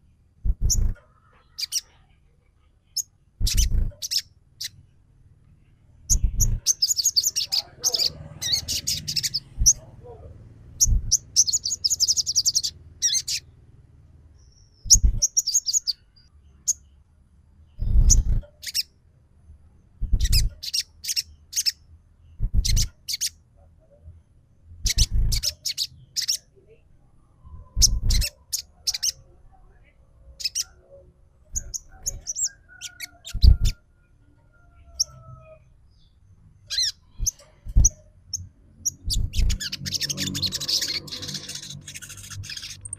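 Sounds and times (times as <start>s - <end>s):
bird chirping high and sharp: 0.5s - 1.9s, 3.0s - 4.8s, 6.1s - 9.9s, 10.8s - 13.5s, 14.4s - 16.9s, 17.8s - 18.9s, 20.0s - 21.8s, 22.4s - 23.4s, 24.8s - 26.5s, 27.5s - 29.2s, 31.5s - 33.8s, 36.6s - 42.9s
dull low thud: 10.8s - 11.2s.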